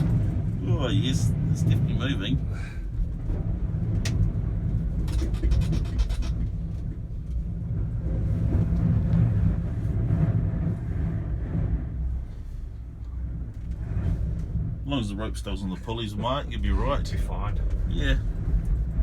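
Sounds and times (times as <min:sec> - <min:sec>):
wind buffeting gondola cabin: 0:00.0 - 0:19.0
rapid rattling clicks: 0:04.9 - 0:07.0.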